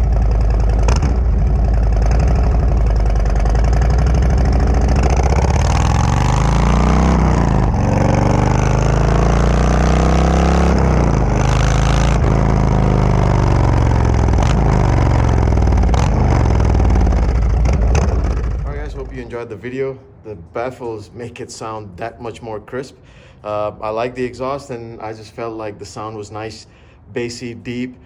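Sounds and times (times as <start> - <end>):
motorcycle engine accelerating: 0.0 - 19.3.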